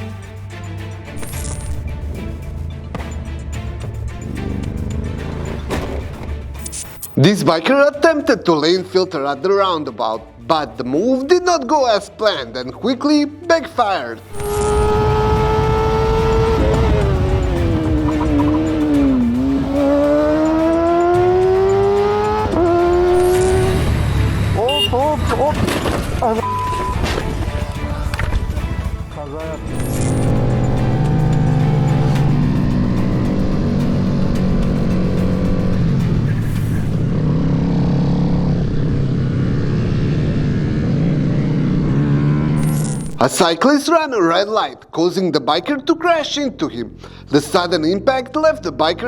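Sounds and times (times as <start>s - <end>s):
wind and road noise: 0.0s - 7.3s, 14.3s - 29.0s, 29.6s - 43.3s
motorcycle engine revving: 1.1s - 6.8s, 14.3s - 28.8s, 29.6s - 43.3s.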